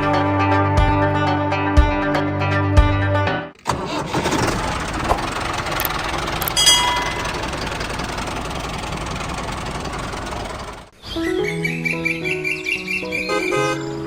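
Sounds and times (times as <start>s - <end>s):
machine mechanical drone: 4.6s - 10.9s.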